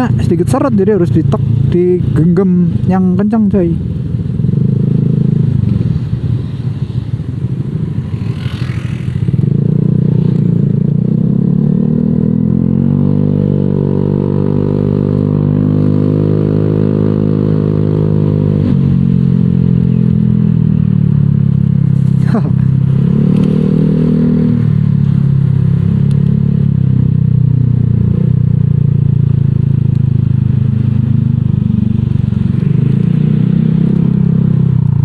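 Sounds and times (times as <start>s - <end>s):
scooter engine revving: 7.4s - 18.6s.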